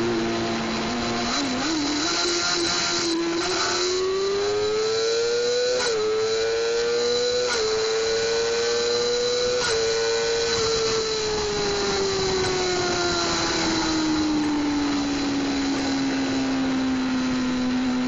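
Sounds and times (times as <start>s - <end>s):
motorcycle engine at high revs: 0.0s - 18.0s
wind rush: 10.4s - 16.8s.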